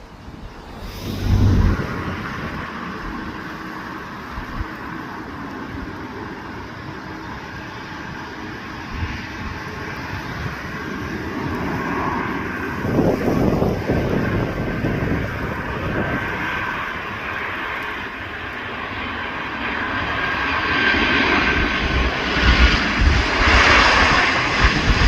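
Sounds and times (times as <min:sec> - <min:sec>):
jet engines whining: 0:00.0 - 0:25.0
loud low rumble: 0:00.5 - 0:04.7.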